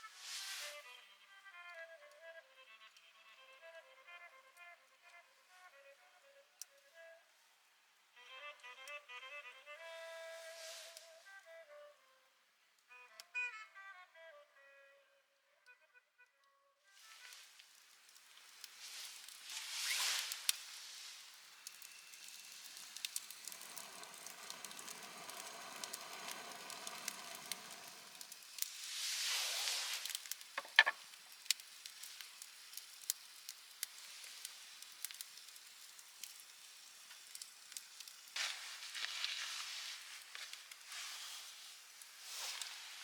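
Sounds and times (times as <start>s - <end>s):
soft sizzle: 0.0s - 13.3s, 16.9s - 43.0s
wood fire crackling and popping: 17.0s - 43.0s.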